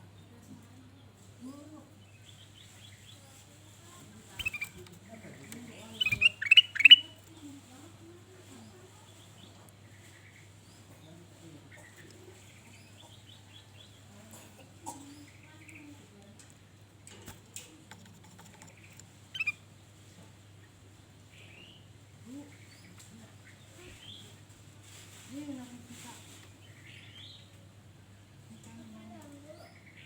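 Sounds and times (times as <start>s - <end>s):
bird chirping and warbling: 4.4s - 4.8s, 5.9s - 7.2s, 19.3s - 19.6s.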